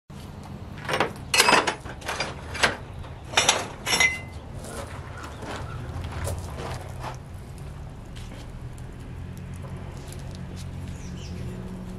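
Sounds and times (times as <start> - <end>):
metal clanking: 0.8 - 7.2.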